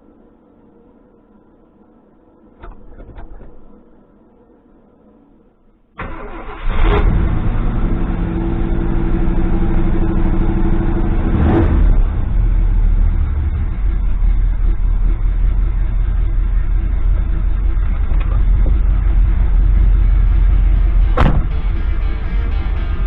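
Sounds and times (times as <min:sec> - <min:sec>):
truck engine starting and revving: 0:06.0 - 0:23.0.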